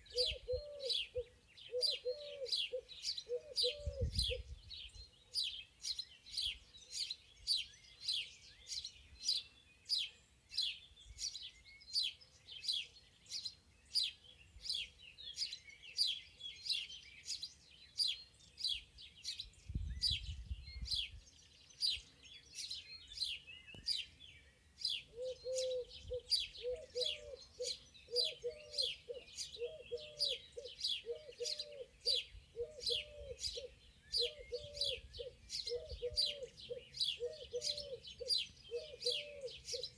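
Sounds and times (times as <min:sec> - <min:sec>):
dove cooing: 0:00.0 - 0:04.4, 0:25.1 - 0:39.9
birds chirping: 0:00.0 - 0:39.9.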